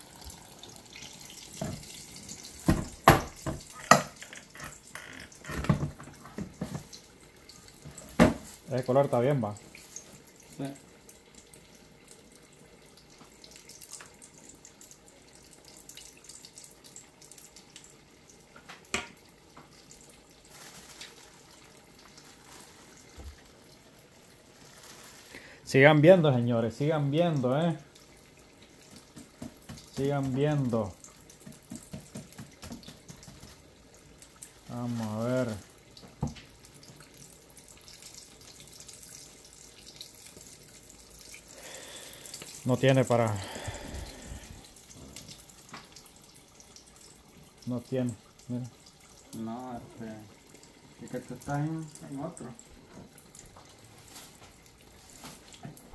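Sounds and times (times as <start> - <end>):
food sizzling in hot oil: 0.0 - 4.1
oil crackles and pops: 0.0 - 25.7, 28.0 - 47.6.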